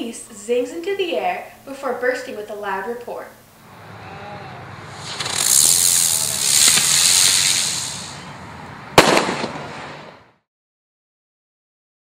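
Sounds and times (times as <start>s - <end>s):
firework whizzing: 3.7s - 10.4s
firework bang: 4.8s - 8.3s, 8.9s - 10.4s.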